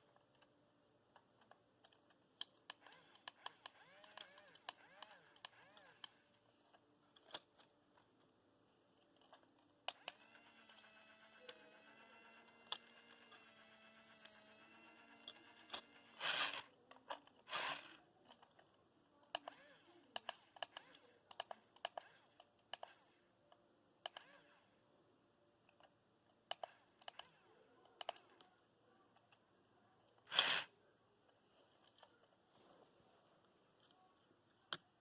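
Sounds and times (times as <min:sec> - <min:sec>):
sharp plastic clicks: 0:01.2 - 0:06.2, 0:19.3 - 0:23.0, 0:25.7 - 0:28.6.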